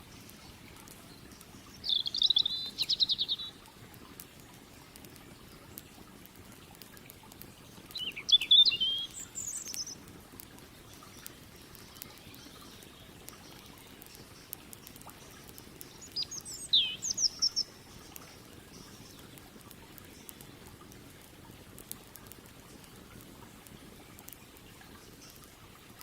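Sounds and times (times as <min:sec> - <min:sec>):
campfire crackling: 0:00.0 - 0:26.0
songbird twittering: 0:01.3 - 0:03.6, 0:07.9 - 0:10.0, 0:15.2 - 0:19.3.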